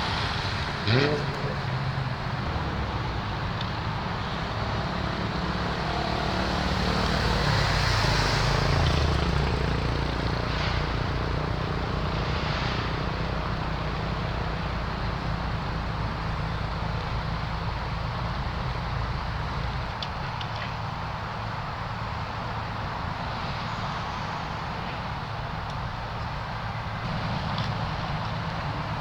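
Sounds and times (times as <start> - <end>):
vehicle driving past: 0.0 - 14.2
car engines idling: 0.0 - 29.0.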